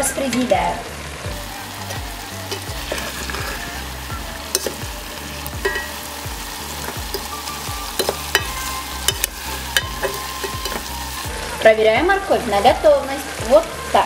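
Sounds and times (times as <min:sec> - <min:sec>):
food sizzling in oil: 0:00.0 - 0:14.0
metal spoon stirring: 0:01.8 - 0:03.9, 0:04.5 - 0:11.0
spoon clinking against pot: 0:04.5 - 0:04.8, 0:05.6 - 0:06.0, 0:08.0 - 0:10.9.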